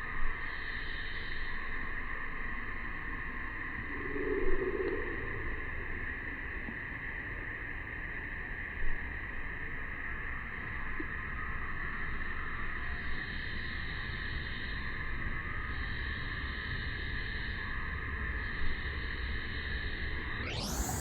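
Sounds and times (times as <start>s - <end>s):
cicadas buzzing: 13.1s - 21.0s
low wind rumble: 20.5s - 21.0s.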